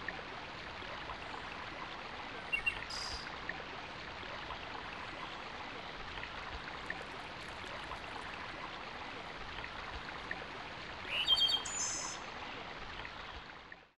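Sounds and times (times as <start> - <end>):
bird calling with high chirps: 11.1 - 12.2.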